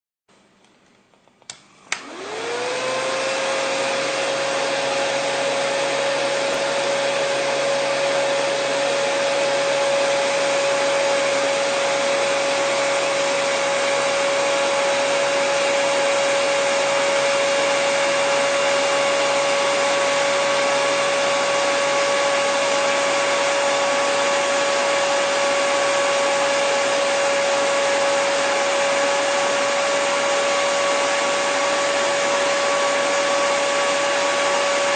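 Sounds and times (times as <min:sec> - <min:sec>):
hair dryer switch clicks: 0:01.4 - 0:02.3
hair dryer running: 0:01.4 - 0:34.9.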